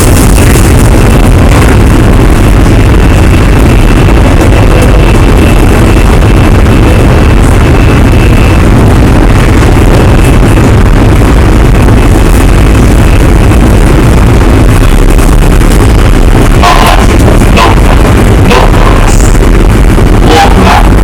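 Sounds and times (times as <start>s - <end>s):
train wheels rumbling on track: 0.0s - 10.8s
high traction motor whine: 0.0s - 21.0s.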